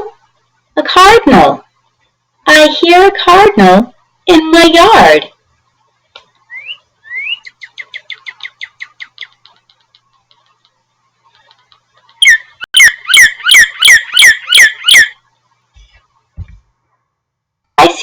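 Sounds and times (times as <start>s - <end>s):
cardinal singing whistles: 6.5s - 9.3s.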